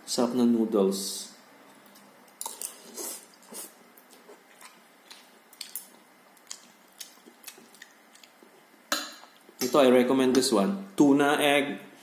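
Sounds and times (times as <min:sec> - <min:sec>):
person chewing and lip-smacking: 0:01.9 - 0:09.7.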